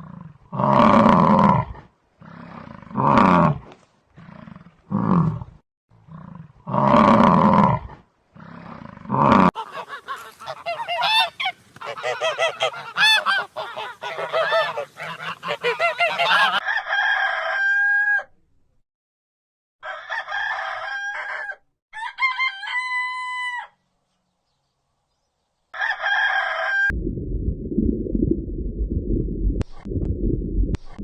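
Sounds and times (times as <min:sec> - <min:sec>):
goose honking: 0:09.6 - 0:16.6
rooster crowing: 0:09.7 - 0:18.3, 0:19.8 - 0:23.8, 0:25.8 - 0:26.9
low rumbling noise: 0:26.9 - 0:31.0.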